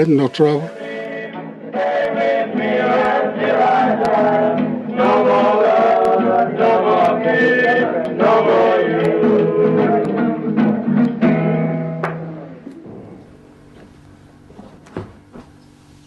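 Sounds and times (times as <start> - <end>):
men singing a chant-like song: 0.7 - 10.5.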